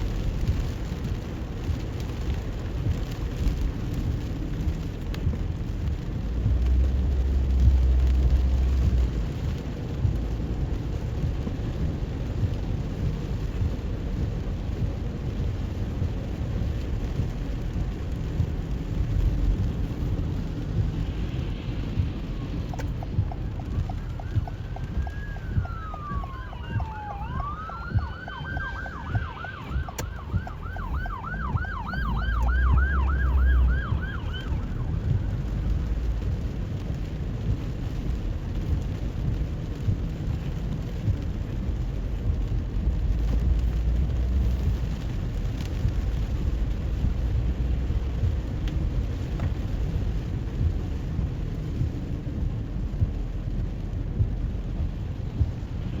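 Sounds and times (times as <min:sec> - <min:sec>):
low rumble: 0:00.0 - 0:56.0
rain on wet road: 0:00.0 - 0:56.0
emergency siren wailing and yelping: 0:22.4 - 0:35.5.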